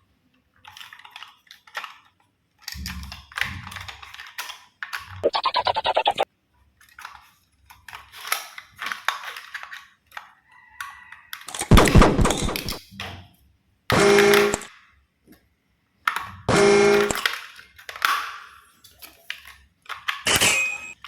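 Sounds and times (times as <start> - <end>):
plastic toys knocking and clattering: 0.6 - 5.1, 6.8 - 10.3.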